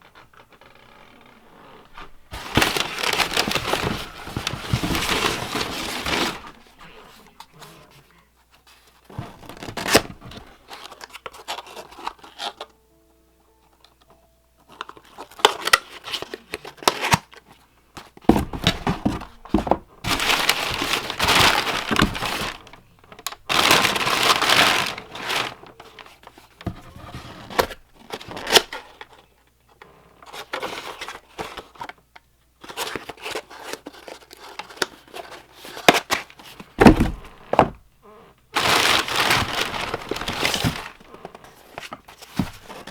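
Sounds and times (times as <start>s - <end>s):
packaging tearing and crinkling: 2.2s - 6.9s, 9.4s - 12.7s, 14.7s - 17.4s, 18.4s - 29.1s, 38.6s - 42.9s.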